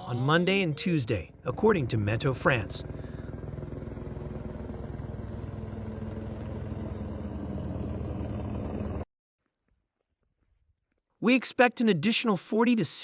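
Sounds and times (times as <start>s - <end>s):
engine running with fast pulse: 0.9s - 9.1s.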